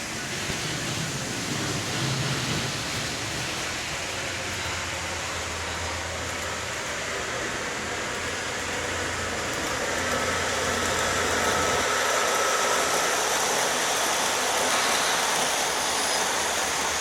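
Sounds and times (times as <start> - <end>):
train passing: 0.0 - 17.0.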